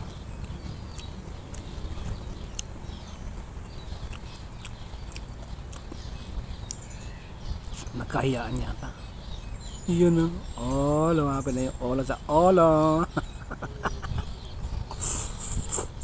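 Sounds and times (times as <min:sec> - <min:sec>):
chewing with wet mouth clicks: 0:00.4 - 0:07.0.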